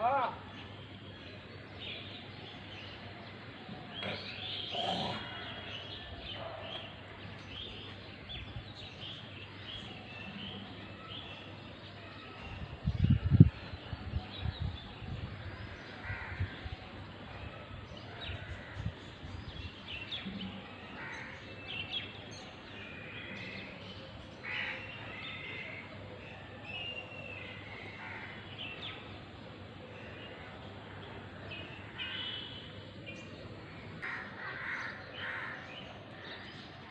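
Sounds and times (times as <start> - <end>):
crows cawing: 16.0 - 16.5, 24.4 - 25.8, 27.8 - 28.4, 34.0 - 35.7.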